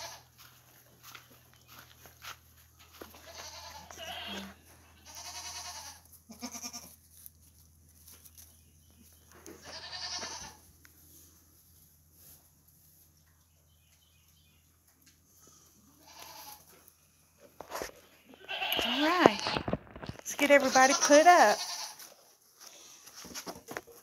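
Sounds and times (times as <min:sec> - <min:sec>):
goats bleating: 0:00.0 - 0:00.3, 0:03.0 - 0:07.0, 0:09.6 - 0:10.6, 0:16.0 - 0:16.7, 0:18.3 - 0:19.6, 0:20.4 - 0:22.1.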